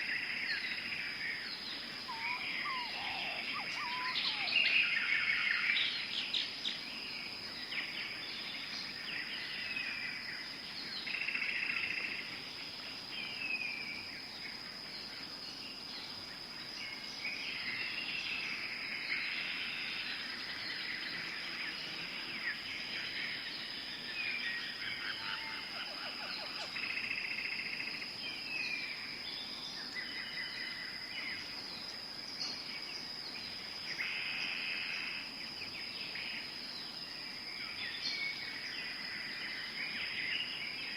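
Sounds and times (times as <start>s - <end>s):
bird calls: 0.0s - 6.8s
high insect drone: 0.0s - 40.9s.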